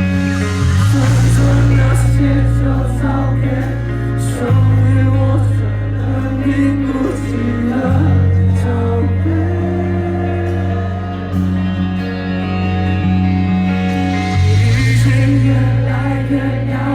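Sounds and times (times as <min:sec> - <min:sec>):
drums with cymbal hits: 0:00.0 - 0:05.0
man singing: 0:00.0 - 0:12.2, 0:14.1 - 0:16.9
bass notes: 0:00.0 - 0:16.9.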